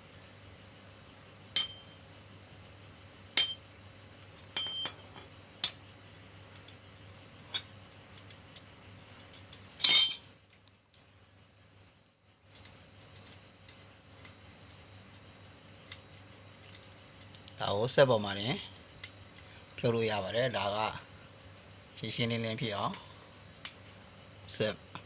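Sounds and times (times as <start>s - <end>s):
faint steady hum: 0.0s - 25.0s
metal clinks of tools and screws: 1.6s - 1.9s, 3.4s - 3.6s, 4.6s - 5.9s, 9.8s - 10.3s
metallic rattle: 1.6s - 1.9s.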